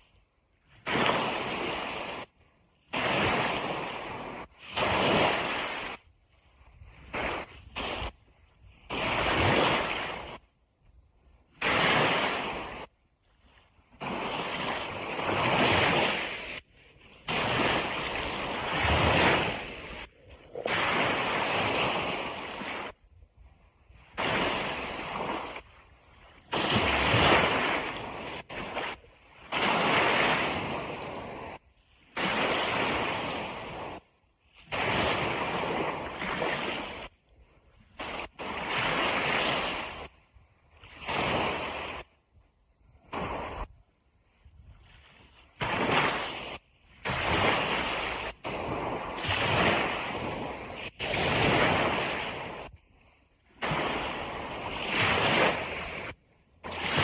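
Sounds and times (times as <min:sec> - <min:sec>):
ocean surf washing onto beach: 0:00.7 - 0:06.1, 0:06.8 - 0:10.4, 0:11.4 - 0:12.9, 0:13.6 - 0:23.1, 0:23.8 - 0:34.0, 0:40.9 - 0:42.1, 0:45.0 - 0:52.8, 0:53.4 - 0:57.0.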